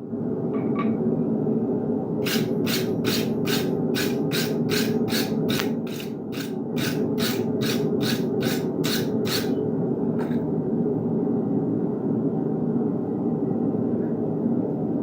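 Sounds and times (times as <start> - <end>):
hand tool scraping iron: 2.2 - 9.6, 10.2 - 10.4.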